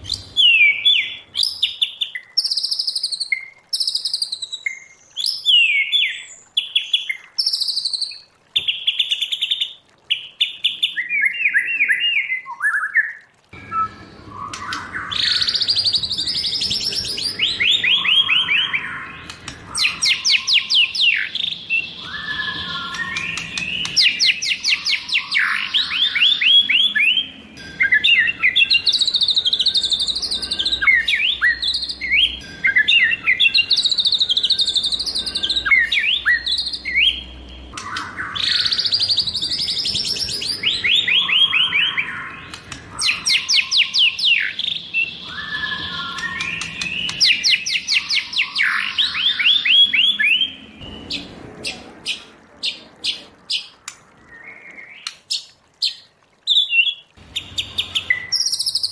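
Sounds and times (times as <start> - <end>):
bird singing whistled trills: 0.0 - 51.3, 54.3 - 58.9
bird sharp ticking notes: 13.6 - 58.9.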